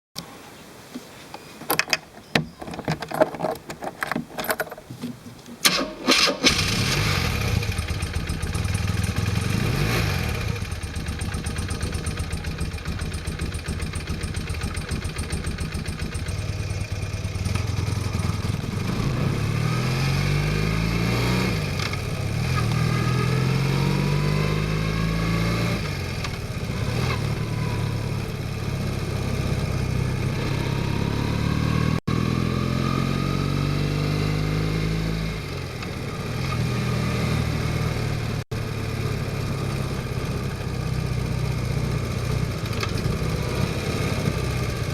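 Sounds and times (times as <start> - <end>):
engine cranking and starting: 1.7 - 19.1
engine running and revving: 6.1 - 44.9.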